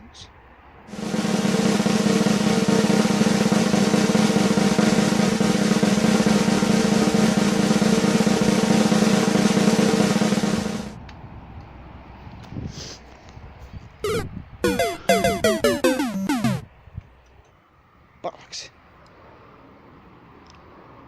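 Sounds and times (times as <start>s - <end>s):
snare drum roll: 0.9s - 11.0s, 14.0s - 16.6s.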